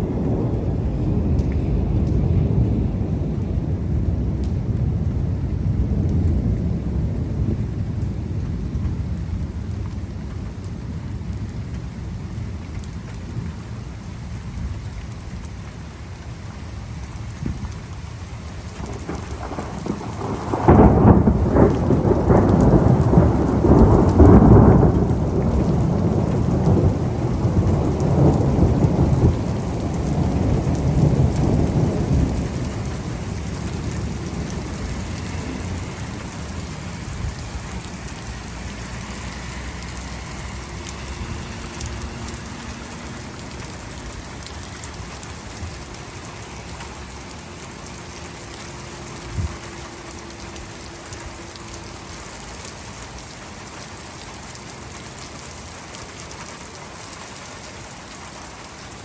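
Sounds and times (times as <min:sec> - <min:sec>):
thunderclap rumbling: 0:00.0 - 0:16.0, 0:16.6 - 0:53.1
steady rain: 0:00.0 - 0:59.0.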